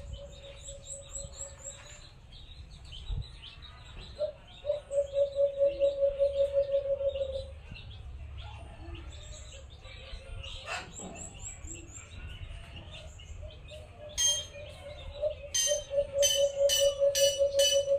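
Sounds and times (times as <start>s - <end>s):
small birds chirping: 0.0s - 17.9s
dove cooing: 4.2s - 7.5s, 15.2s - 17.9s.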